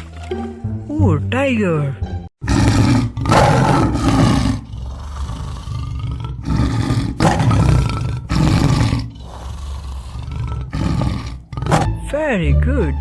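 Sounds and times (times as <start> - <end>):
tiger roaring: 2.4 - 12.0.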